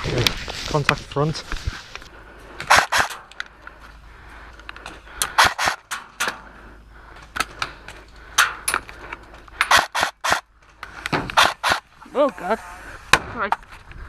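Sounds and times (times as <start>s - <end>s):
airsoft gun shots: 2.7s - 3.2s, 5.3s - 5.9s, 9.7s - 10.4s, 11.4s - 11.9s.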